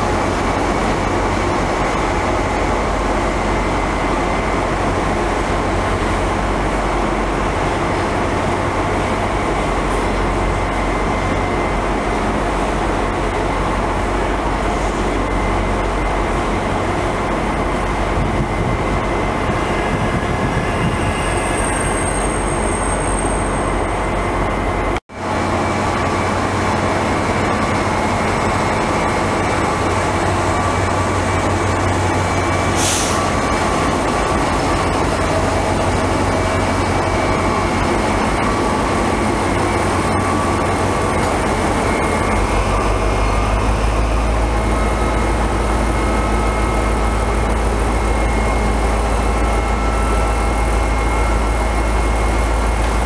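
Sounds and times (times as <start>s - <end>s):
train machinery noise: 0.0s - 53.0s
air hiss: 32.7s - 33.3s.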